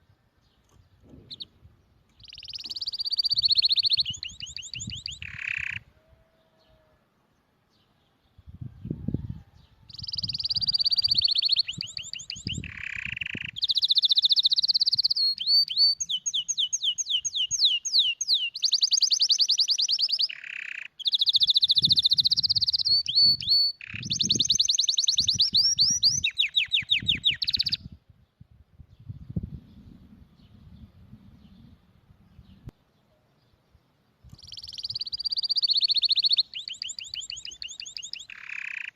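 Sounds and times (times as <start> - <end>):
canary singing trills: 1.2 - 6.9, 8.9 - 28.0, 34.3 - 38.9.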